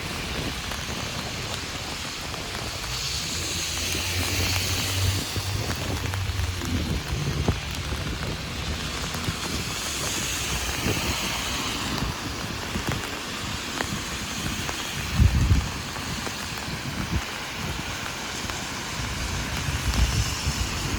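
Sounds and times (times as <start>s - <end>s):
heavy rain on an umbrella: 0.0s - 20.9s
low rumble: 3.1s - 9.6s.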